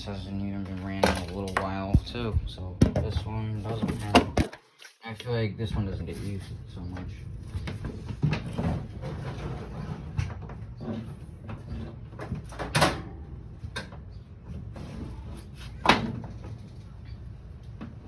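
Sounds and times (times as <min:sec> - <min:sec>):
steady low hum: 0:00.0 - 0:04.4
objects knocking and clunking: 0:00.6 - 0:04.9.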